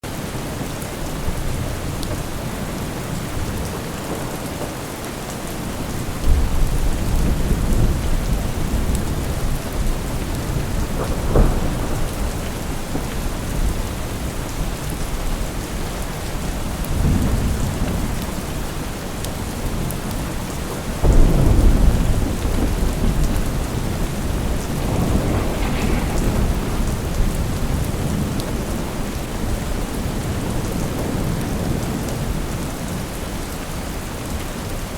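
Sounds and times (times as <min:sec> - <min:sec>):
steady rain falling: 0:00.0 - 0:34.9
rolling thunder: 0:05.9 - 0:33.1.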